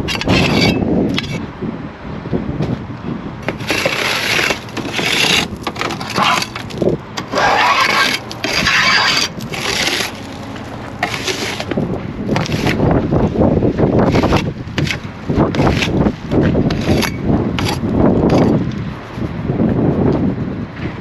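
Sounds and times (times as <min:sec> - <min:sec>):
snow crunching and scraping: 0:03.4 - 0:18.6.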